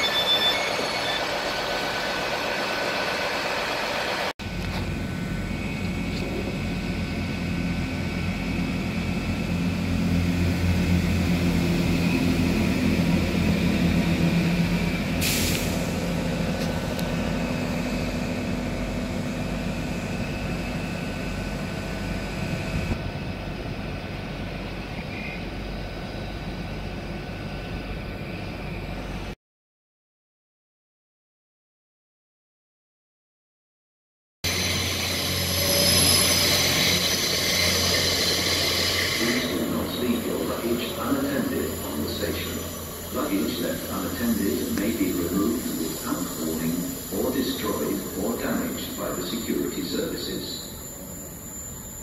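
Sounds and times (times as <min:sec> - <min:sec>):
train diesel engine rumble and whine: 0:00.0 - 0:29.4, 0:34.5 - 0:52.0
sharp hiss of air: 0:15.2 - 0:16.0.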